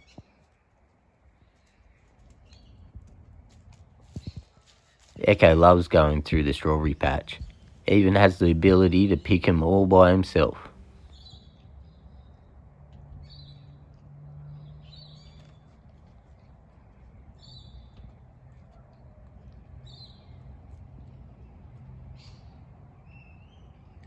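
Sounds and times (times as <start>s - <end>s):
faint low outdoor hum: 0.0s - 24.0s
birds chirping: 5.2s - 12.6s, 17.2s - 18.1s.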